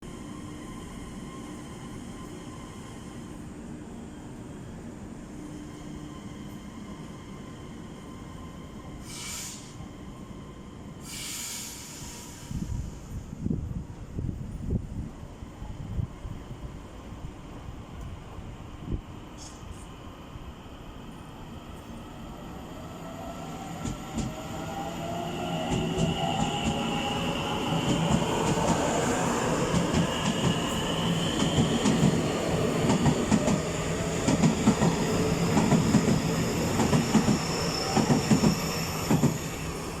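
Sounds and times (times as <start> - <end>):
train wheels clacking on rails: 23.8 - 24.4, 25.6 - 39.4.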